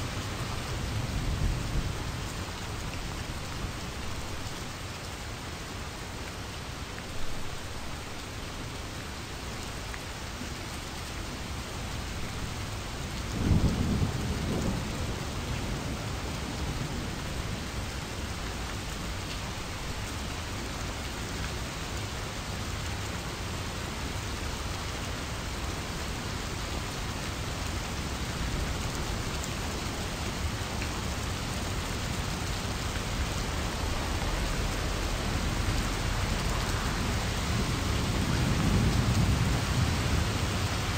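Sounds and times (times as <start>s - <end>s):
steady rain falling: 0.0s - 40.9s
thunder rumble: 33.7s - 40.9s.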